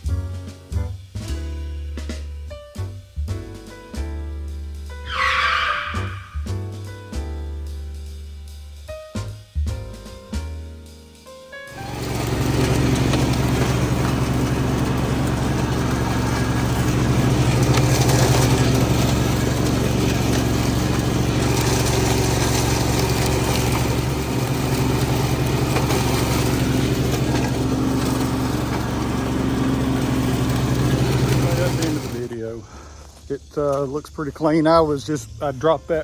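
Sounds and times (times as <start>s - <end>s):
tractor engine running: 11.7s - 33.2s.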